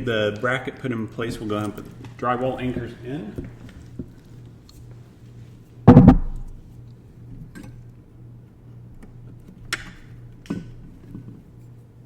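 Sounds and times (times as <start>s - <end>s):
low steady hum: 0.0s - 12.0s
loud knocking: 5.9s - 6.6s.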